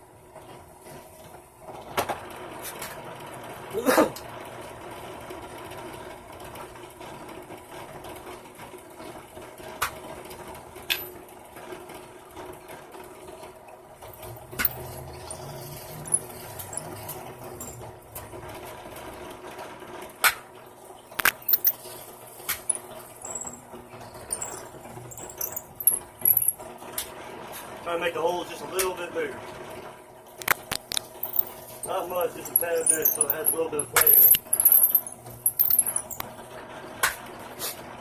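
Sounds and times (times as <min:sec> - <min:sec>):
sharp clicks and knocks: 0:21.2 - 0:21.8, 0:30.4 - 0:36.3.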